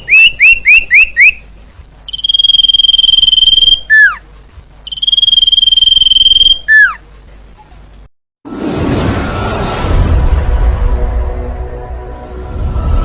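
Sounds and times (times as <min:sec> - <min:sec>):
bird whistling: 0:00.0 - 0:01.5, 0:02.1 - 0:04.2, 0:04.9 - 0:07.0.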